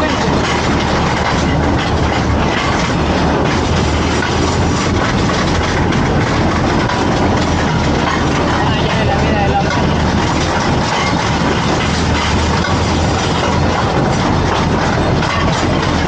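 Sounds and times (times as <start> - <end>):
wheels rumbling on rails: 0.0 - 16.0.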